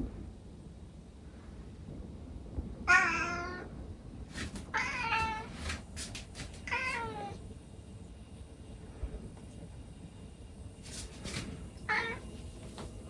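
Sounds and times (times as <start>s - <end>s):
cat meowing: 2.9s - 3.7s, 4.6s - 5.8s, 6.4s - 7.4s, 11.8s - 12.3s.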